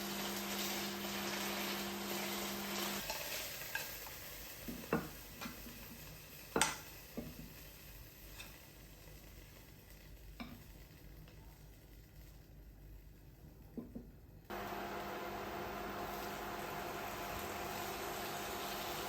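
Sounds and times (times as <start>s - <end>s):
appliance hum: 0.0s - 3.3s, 14.0s - 19.0s
frying sizzle: 0.0s - 19.0s.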